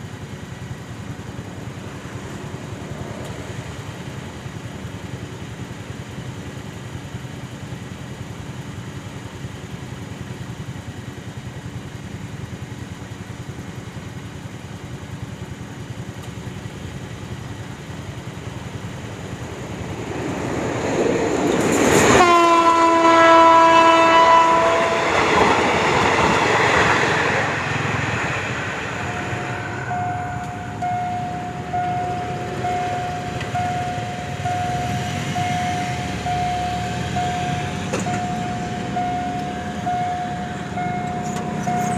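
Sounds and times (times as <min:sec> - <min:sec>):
diesel locomotive engine: 0:00.0 - 0:41.9
train wheel clatter: 0:19.3 - 0:41.9
locomotive horn blast: 0:22.0 - 0:26.4, 0:28.7 - 0:41.9
steady high tone: 0:22.1 - 0:41.9.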